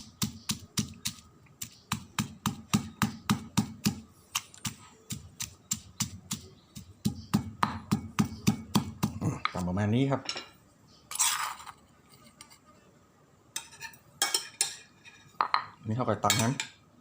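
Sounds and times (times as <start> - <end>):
pestle thudding in a mortar: 0.0 - 9.7.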